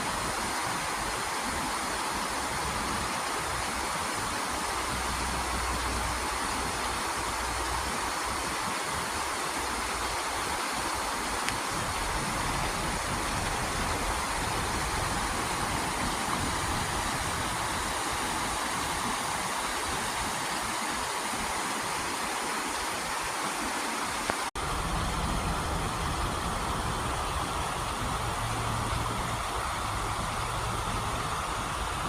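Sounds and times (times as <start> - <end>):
running water rushing: 0.0 - 32.0.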